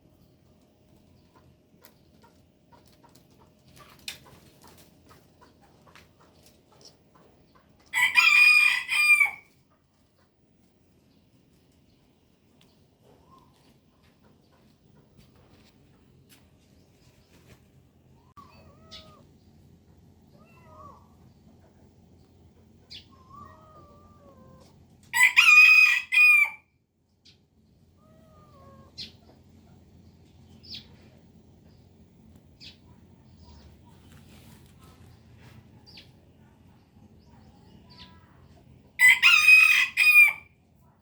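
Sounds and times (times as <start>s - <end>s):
rooster crowing: 7.9s - 9.5s, 25.1s - 26.7s, 39.0s - 40.5s.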